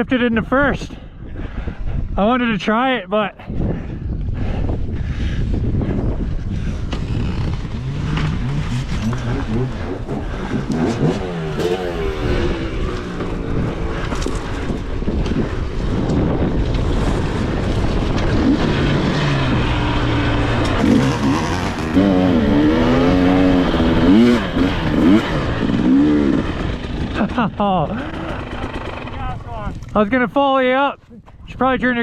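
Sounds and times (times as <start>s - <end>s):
dirt bike engine revving: 6.8s - 29.6s.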